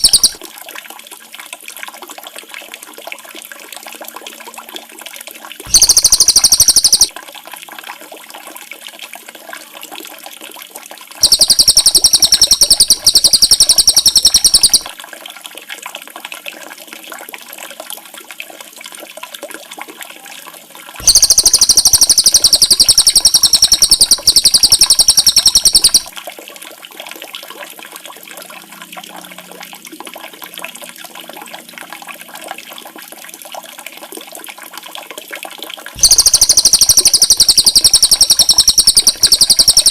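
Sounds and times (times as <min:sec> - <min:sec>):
songbird buzzy trill: 0:00.0 - 0:00.4, 0:05.7 - 0:07.1, 0:11.2 - 0:14.9, 0:21.0 - 0:26.1, 0:36.0 - 0:39.9.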